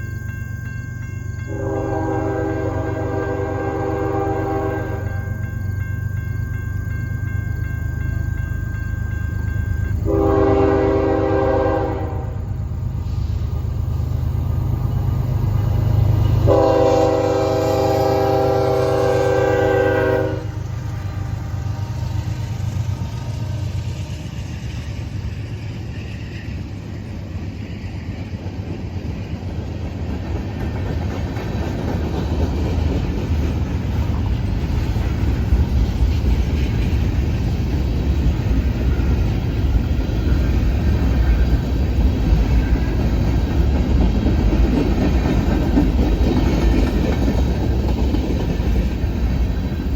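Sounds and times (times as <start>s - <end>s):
locomotive horn blasts: 1.5s - 5.4s, 10.0s - 12.6s, 16.4s - 23.9s
freight cars rumbling and clattering: 22.6s - 49.9s.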